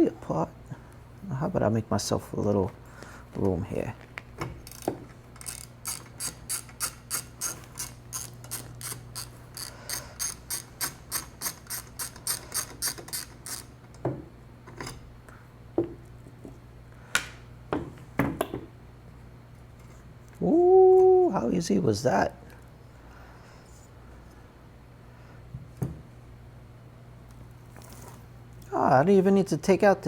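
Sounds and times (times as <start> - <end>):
ratchet clicking: 4.6 - 13.7.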